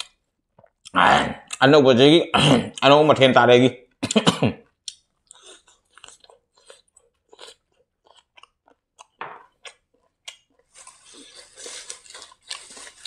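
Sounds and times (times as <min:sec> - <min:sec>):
chewing fried rice: 0:04.6 - 0:13.0.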